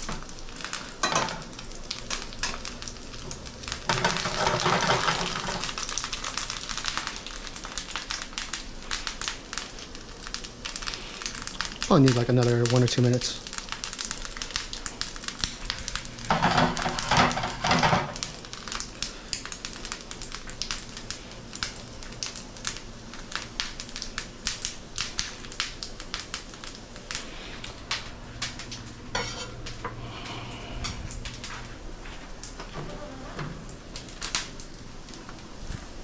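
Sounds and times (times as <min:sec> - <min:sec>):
crackling pops: 0:00.0 - 0:31.7
dumplings sizzling in a frying pan: 0:00.0 - 0:32.8, 0:33.7 - 0:36.0.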